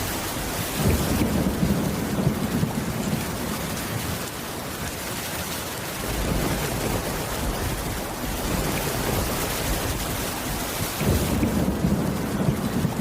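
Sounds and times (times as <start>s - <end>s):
distant thunder rumbling: 0.0s - 4.9s, 5.9s - 13.0s
heavy rain pouring: 0.0s - 13.0s.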